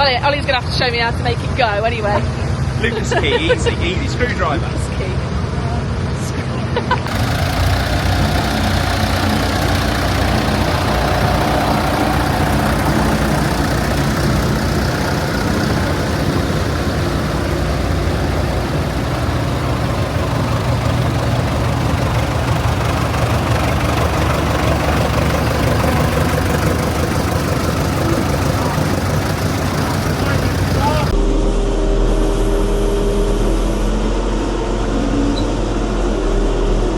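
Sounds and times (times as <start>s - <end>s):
diesel engine idling: 7.0s - 31.2s.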